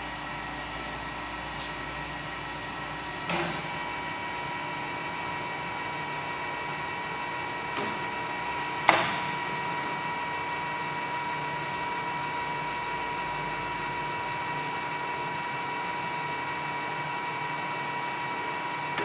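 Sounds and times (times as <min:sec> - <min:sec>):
lathe humming with gear whine: 0:00.0 - 0:19.0
sharp mechanical clunks: 0:08.8 - 0:09.4.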